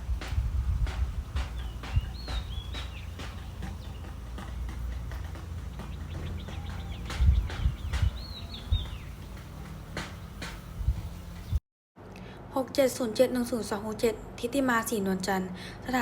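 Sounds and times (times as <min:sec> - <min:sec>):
wind rumble on microphone: 0:00.0 - 0:11.6
sharp knocks: 0:00.1 - 0:11.0
birds whistling: 0:01.3 - 0:11.6.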